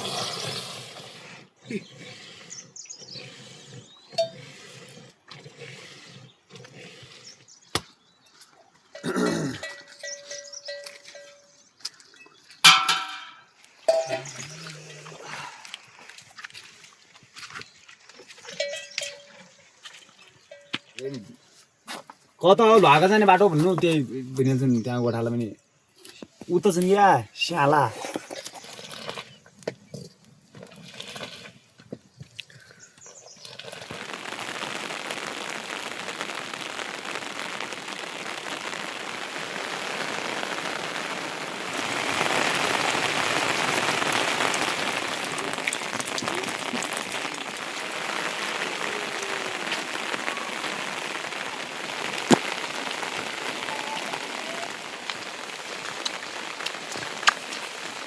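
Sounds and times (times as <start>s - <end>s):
rain pouring: 0.0s - 1.8s, 9.0s - 10.2s, 12.7s - 16.2s, 22.4s - 24.6s, 33.6s - 58.0s.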